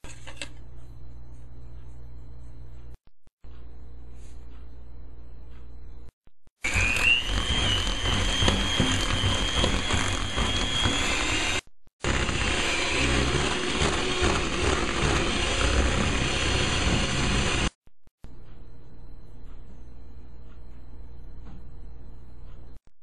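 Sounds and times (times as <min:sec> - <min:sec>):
electric kitchen mixer running: 0:06.6 - 0:17.8.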